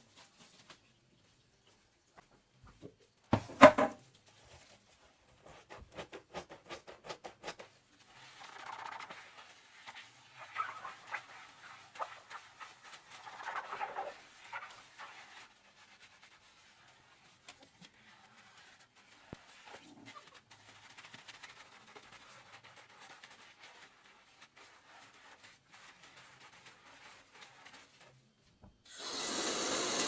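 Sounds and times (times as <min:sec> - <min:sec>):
dishes clattering: 0:03.4 - 0:04.0
soapy sponge scrubbing and squishing: 0:04.3 - 0:30.0.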